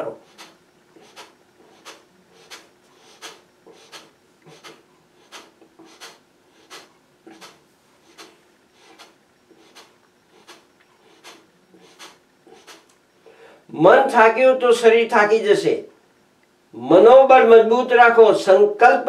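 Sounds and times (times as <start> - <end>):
sharp exhalations through the nose: 0.1 - 13.7.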